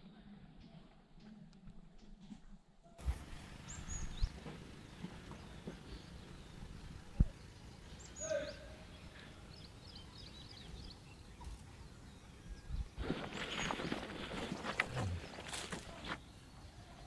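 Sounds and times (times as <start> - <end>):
faint bird calls: 3.4 - 17.0.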